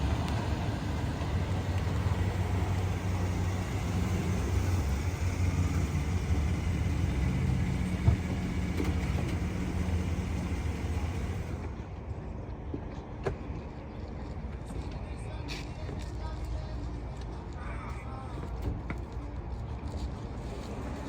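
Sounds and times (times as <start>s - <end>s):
engine humming: 0.0s - 13.1s.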